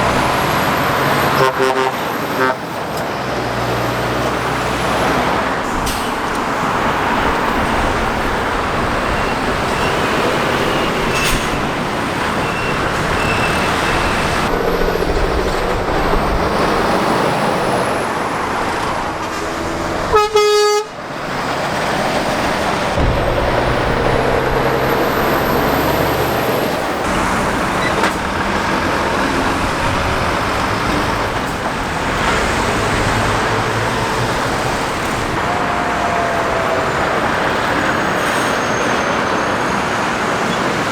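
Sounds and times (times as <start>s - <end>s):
traffic passing on road: 0.0s - 40.9s
vehicle horn blast: 1.3s - 2.7s, 20.1s - 21.0s.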